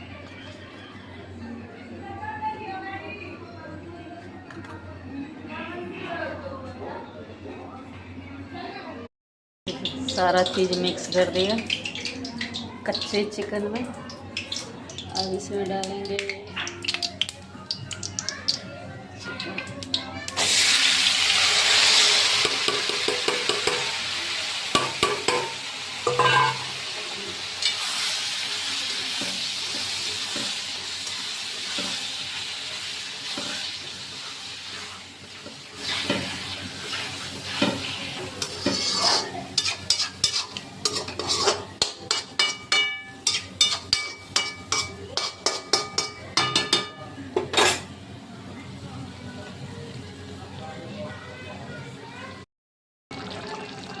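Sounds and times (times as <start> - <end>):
food sizzling in hot oil: 9.7 - 46.8
metal spoon scraping pan: 25.2 - 26.7, 35.8 - 46.2.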